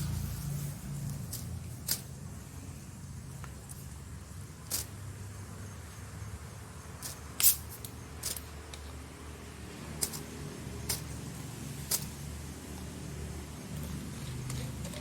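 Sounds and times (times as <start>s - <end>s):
steady low rumble: 0.0s - 3.2s.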